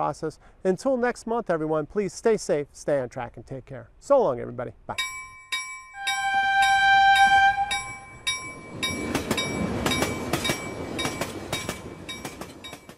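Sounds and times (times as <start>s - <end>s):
bell dinging: 5.0s - 12.9s
train horn blast: 6.0s - 8.1s
train wheels clicking over rail joints: 7.8s - 12.9s.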